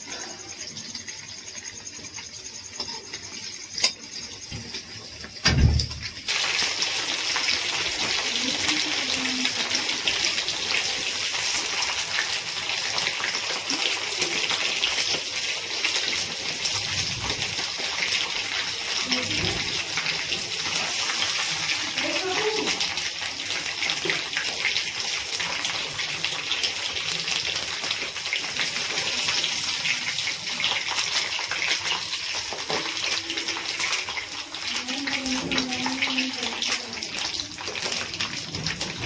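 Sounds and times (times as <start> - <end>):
tap water running hard: 0.0 - 39.0
thump: 5.4 - 6.0.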